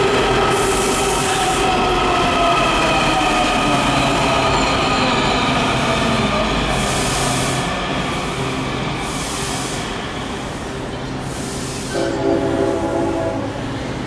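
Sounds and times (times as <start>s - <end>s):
metro train running on rails: 0.0s - 14.0s
locomotive air horn: 11.9s - 13.6s.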